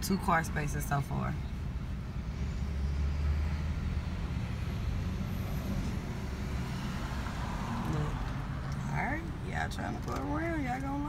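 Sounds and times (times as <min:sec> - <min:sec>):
car engine idling: 0:03.7 - 0:11.0.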